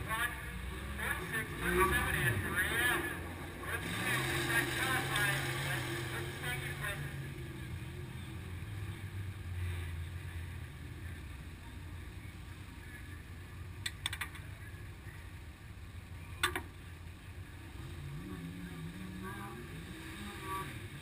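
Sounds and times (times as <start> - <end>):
sharp clicks: 13.8 - 14.5.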